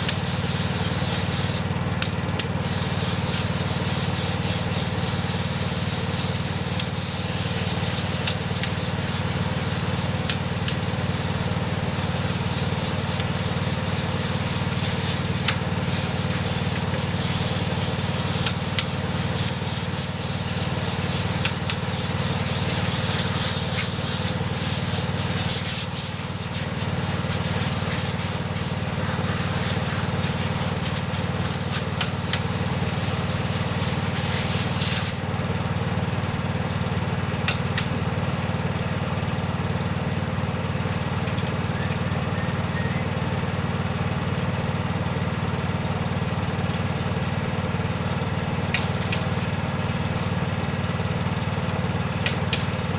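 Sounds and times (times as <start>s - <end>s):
hiss: 0.0s - 1.7s, 2.4s - 35.3s
machine hum: 37.3s - 44.1s.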